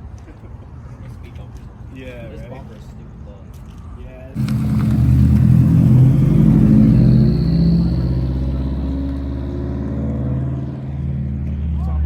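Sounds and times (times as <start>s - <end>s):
car engine running at low revs: 4.4s - 11.5s.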